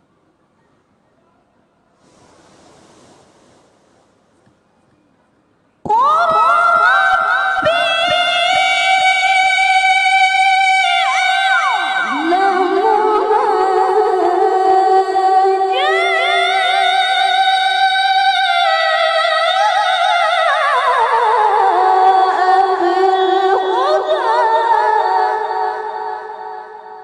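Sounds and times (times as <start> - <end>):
woman reciting melodically: 5.9 - 27.0.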